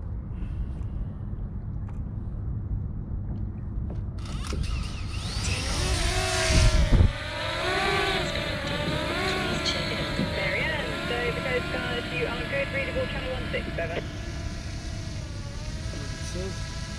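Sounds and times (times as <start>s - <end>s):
low rumble: 0.0s - 16.6s
drone propellers whining: 4.2s - 16.9s.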